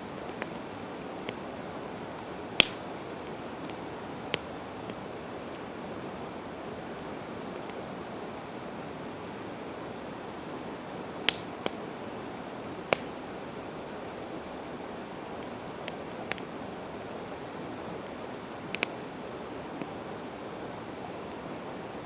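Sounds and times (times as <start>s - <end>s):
campfire crackling and popping: 2.6s - 2.8s, 11.3s - 19.3s
cricket chirping: 11.8s - 19.3s
river rushing: 11.8s - 19.3s.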